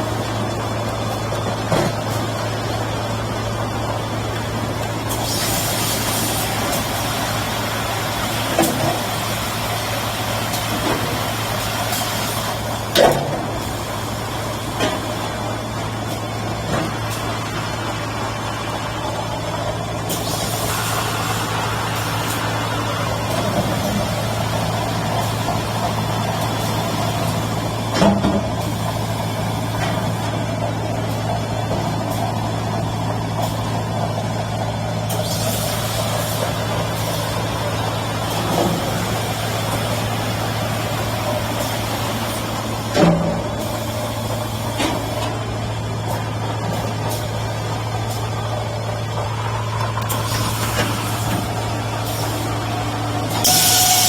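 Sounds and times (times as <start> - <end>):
bottle washing machine humming: 0.0 - 54.0
machine hissing: 5.0 - 12.8, 20.0 - 27.6, 49.5 - 54.0.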